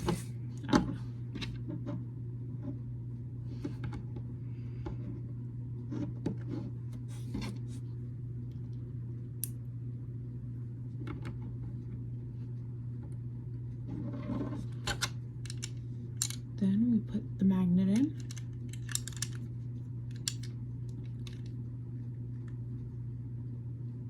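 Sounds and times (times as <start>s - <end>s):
steady low hum: 0.0s - 24.0s
plastic bricks clicking together: 18.0s - 19.4s.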